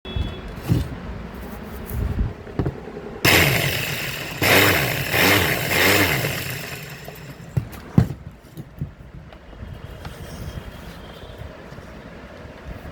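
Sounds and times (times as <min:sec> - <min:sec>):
marble cutter motor running: 0:03.2 - 0:07.8.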